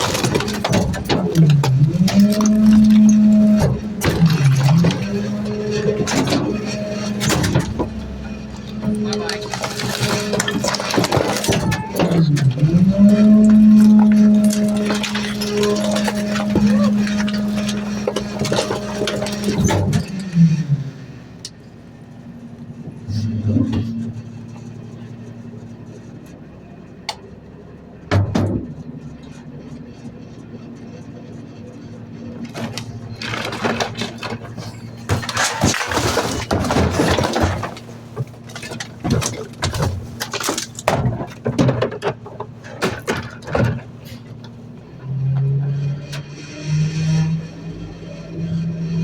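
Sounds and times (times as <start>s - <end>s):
metal clanks and rattles: 0.0s - 21.8s, 28.0s - 46.3s
garbage truck humming: 0.0s - 49.0s
rapid clatter of knocks: 32.4s - 44.6s.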